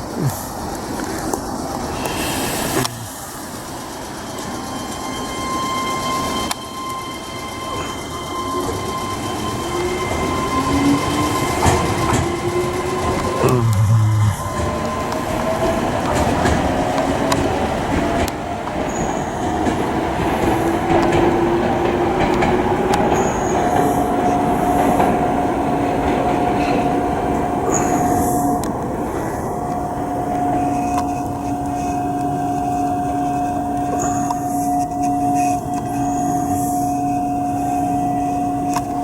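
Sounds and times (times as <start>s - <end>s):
wheels rumbling on track: 0.0s - 39.0s
electric train motor whine: 0.6s - 39.0s.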